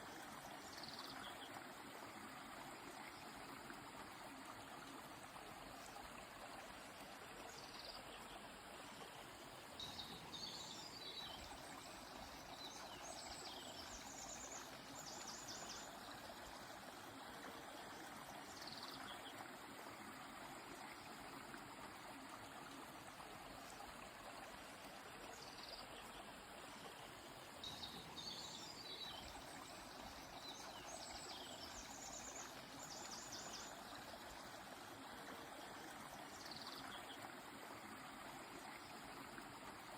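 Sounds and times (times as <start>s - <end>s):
flowing river: 0.0s - 39.9s
songbirds singing: 9.2s - 16.6s, 27.0s - 34.4s.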